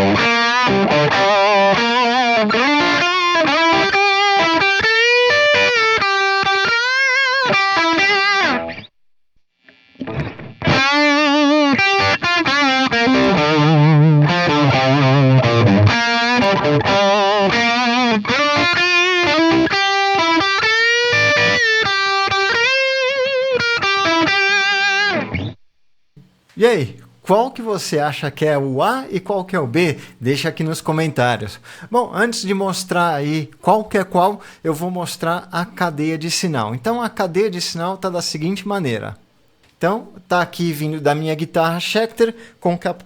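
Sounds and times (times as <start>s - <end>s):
distorted electric guitar: 0.0s - 8.9s, 9.6s - 25.6s.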